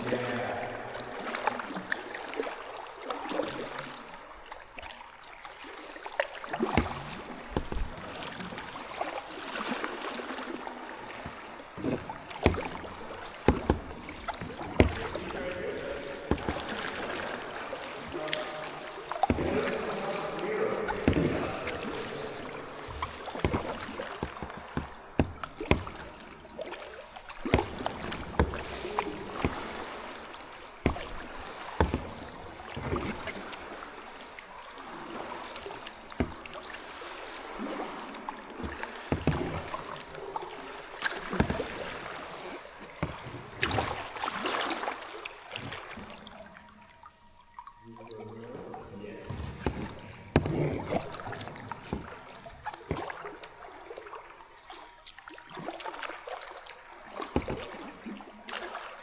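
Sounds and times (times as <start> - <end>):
paddle splashing in water: 0.0 - 59.0.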